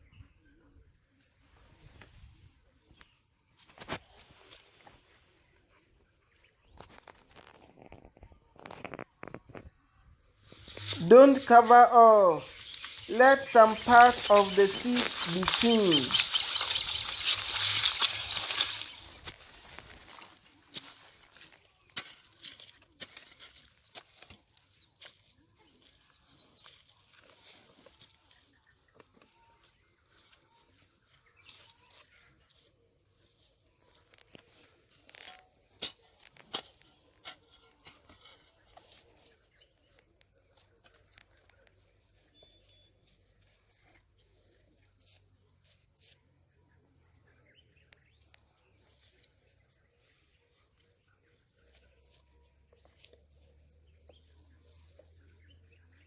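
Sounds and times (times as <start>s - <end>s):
insect trilling high: 10.5s - 20.6s.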